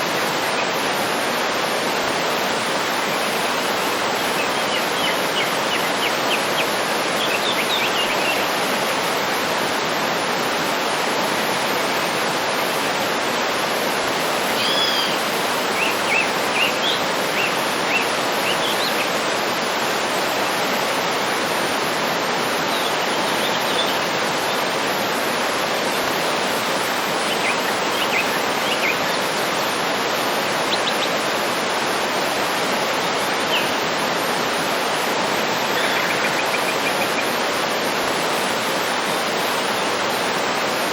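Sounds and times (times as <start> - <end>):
waterfall rushing: 0.0 - 40.9
songbirds chirping and whistling: 14.5 - 19.1.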